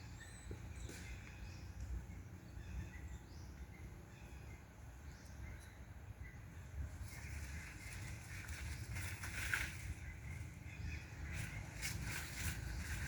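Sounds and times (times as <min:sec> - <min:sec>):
wind rumble: 0:05.8 - 0:13.0.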